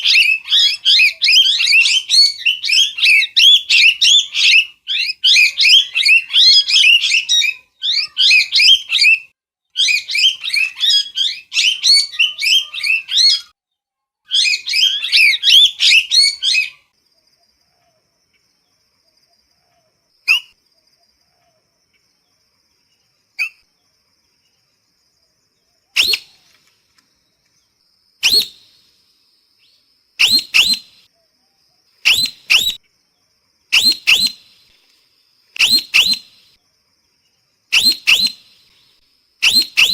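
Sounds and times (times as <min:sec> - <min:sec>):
parrot squawks: 0:00.0 - 0:09.2, 0:26.0 - 0:26.3, 0:28.2 - 0:28.6, 0:30.2 - 0:31.0, 0:32.0 - 0:32.8, 0:33.7 - 0:34.4, 0:35.6 - 0:36.4, 0:37.7 - 0:38.4, 0:39.4 - 0:39.9.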